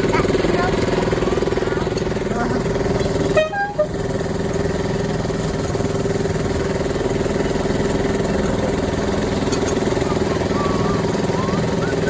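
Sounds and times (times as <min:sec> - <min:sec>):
locomotive engine pulsing: 0:00.0 - 0:12.0.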